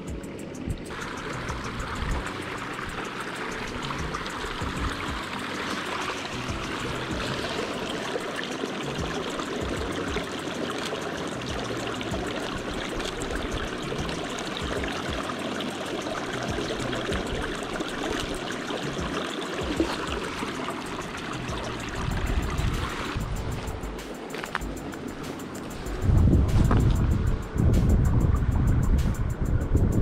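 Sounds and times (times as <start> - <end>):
river water rushing: 0.0 - 26.8
low rumble: 25.8 - 30.0.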